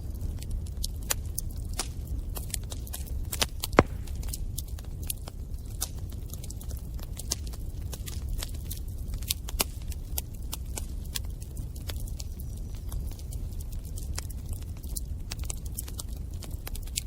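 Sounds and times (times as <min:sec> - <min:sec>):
bonfire crackling and popping: 0:03.6 - 0:04.6.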